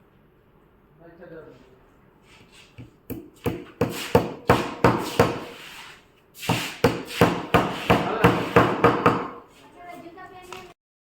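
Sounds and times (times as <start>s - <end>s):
hammer blows on wood: 3.1s - 5.6s, 6.4s - 9.4s.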